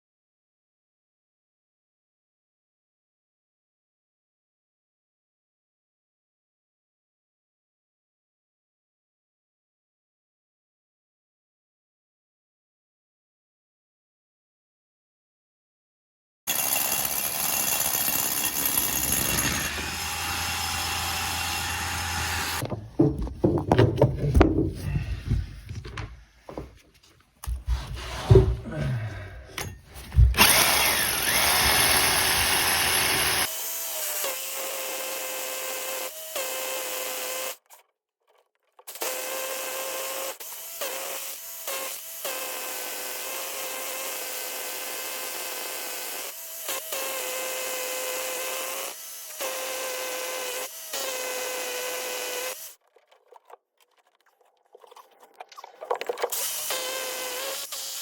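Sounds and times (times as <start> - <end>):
power drill running: 16.5 - 23.6, 30.3 - 37.6, 38.9 - 52.8, 56.3 - 58.0
knocking and scraping: 21.9 - 30.5.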